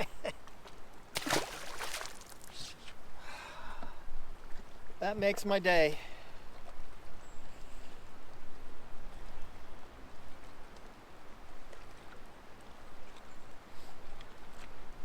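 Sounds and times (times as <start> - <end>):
water lapping against boat hull: 1.2 - 2.7.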